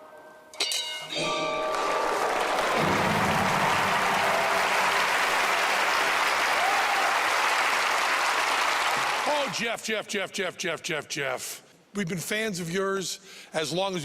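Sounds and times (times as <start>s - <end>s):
audience applauding: 1.5s - 9.6s.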